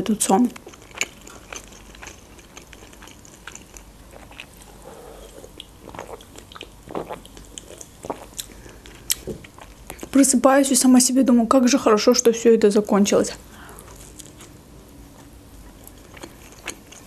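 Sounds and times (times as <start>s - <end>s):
person chewing food: 0.6s - 10.2s, 13.6s - 17.0s
person gulping a drink: 4.2s - 9.3s.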